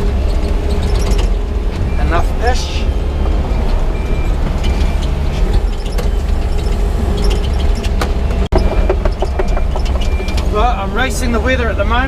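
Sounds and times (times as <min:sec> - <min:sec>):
excavator diesel engine running: 0:00.0 - 0:12.0
machine clanks and clicks: 0:03.2 - 0:10.5.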